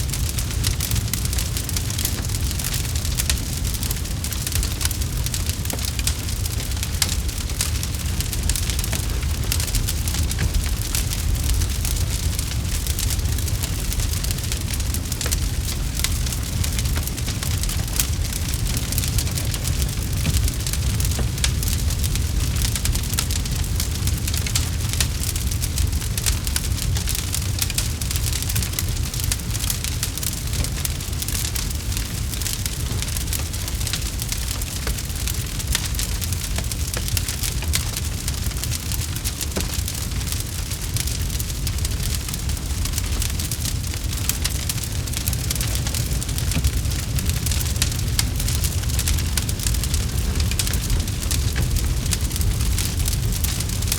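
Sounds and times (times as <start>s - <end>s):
campfire crackling: 0.0s - 53.9s.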